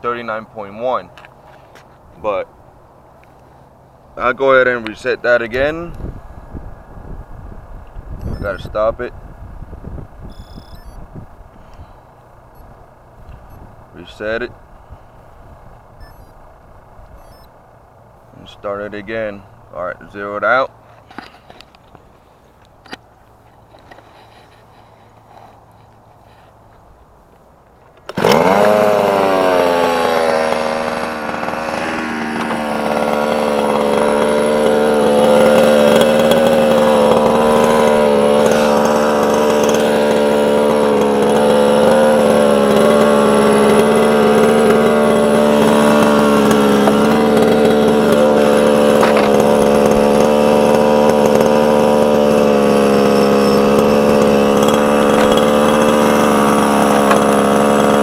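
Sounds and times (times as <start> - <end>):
small two-stroke engine idling: 8.2 - 8.7, 10.3 - 11.0, 16.0 - 16.3, 28.1 - 58.0.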